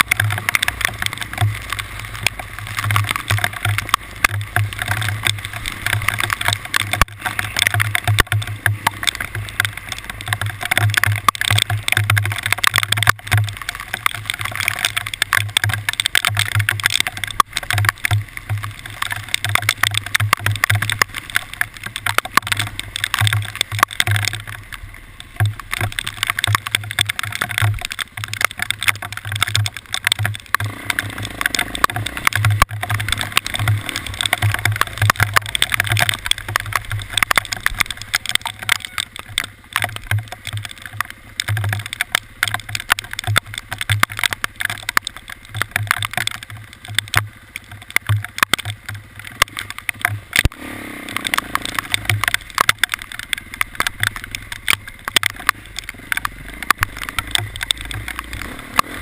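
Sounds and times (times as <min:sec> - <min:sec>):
sharp clicks and rattles: 0:00.0 - 0:59.0
vehicle engine drone: 0:00.0 - 0:59.0.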